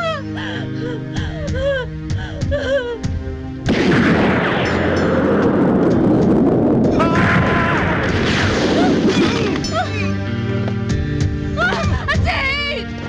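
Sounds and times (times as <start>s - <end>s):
explosion blast: 3.7s - 9.6s
loud rumbling: 3.7s - 9.6s.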